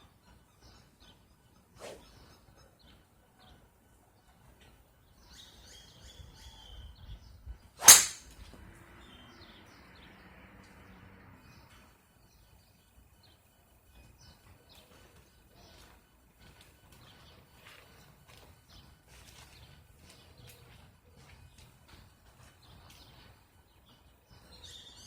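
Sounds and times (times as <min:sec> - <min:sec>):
golf club striking ball: 0:07.8 - 0:08.3.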